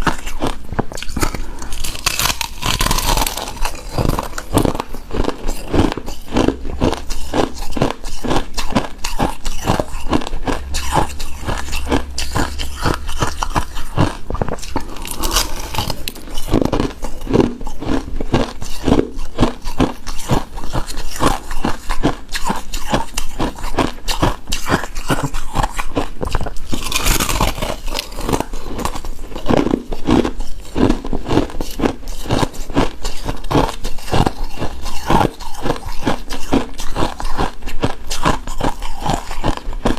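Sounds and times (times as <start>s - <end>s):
chewing and crunching ice: 0.0s - 39.9s.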